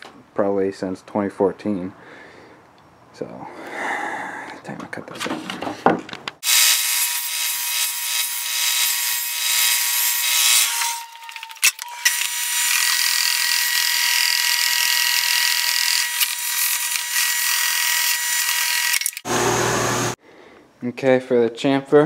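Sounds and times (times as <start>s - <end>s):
electric saw cutting wood: 6.4s - 20.2s.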